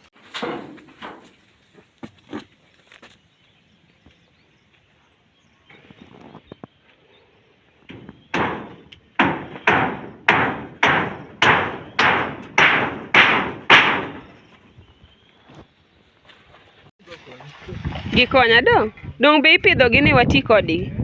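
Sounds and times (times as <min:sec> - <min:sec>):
hammer striking metal roofing sheets: 0:00.1 - 0:01.4, 0:07.9 - 0:14.4.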